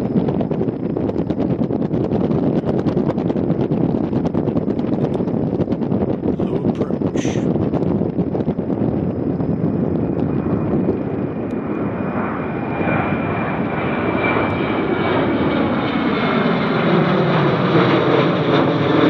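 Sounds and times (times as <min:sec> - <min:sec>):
high steady whine: 0:00.0 - 0:15.2
jet engines rumbling: 0:00.0 - 0:19.0.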